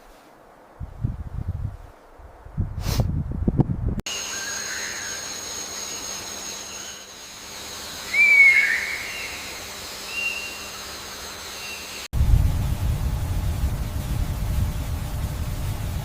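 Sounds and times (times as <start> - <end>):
steady high background hiss: 4.1 - 16.0
bird whistled call: 8.1 - 9.5, 10.1 - 10.8.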